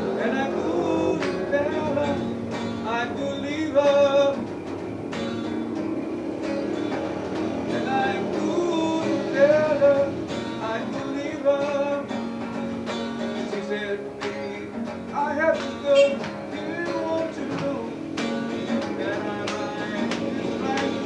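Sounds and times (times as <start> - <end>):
man singing slow song: 0.0 - 4.5, 7.7 - 12.2, 13.4 - 21.0
strummed acoustic guitar: 0.0 - 21.0.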